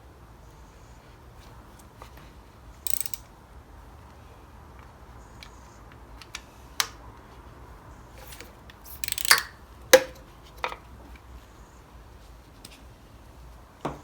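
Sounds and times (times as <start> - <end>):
metal tools clicking and clinking: 2.9 - 3.3, 8.2 - 10.8.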